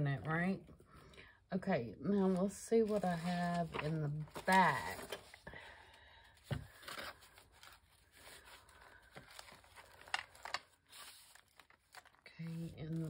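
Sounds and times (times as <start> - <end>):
paper rustling: 2.2 - 5.7, 6.4 - 13.0.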